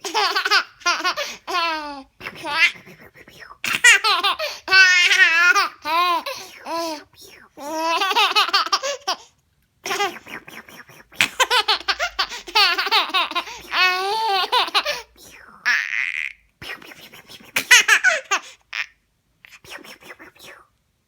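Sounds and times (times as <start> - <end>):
baby laughing: 0.0 - 2.9, 3.6 - 10.5, 11.1 - 16.4, 17.5 - 19.0.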